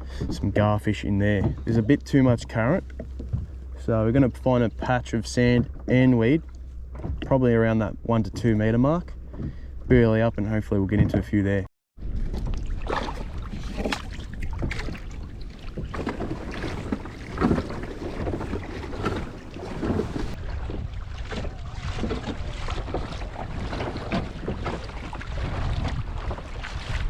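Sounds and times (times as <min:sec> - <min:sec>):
water splashing against kayak hull: 0:00.0 - 0:27.0
wind buffeting microphone: 0:12.0 - 0:27.0.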